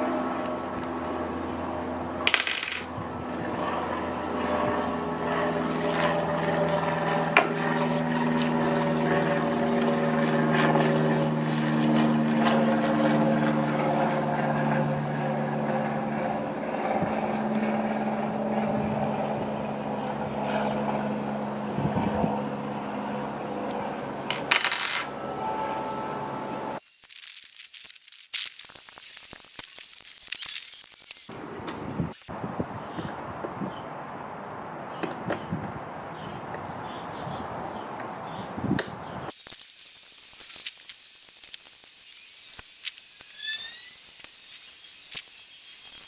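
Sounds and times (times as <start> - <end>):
workshop machine humming: 22.9 - 27.8.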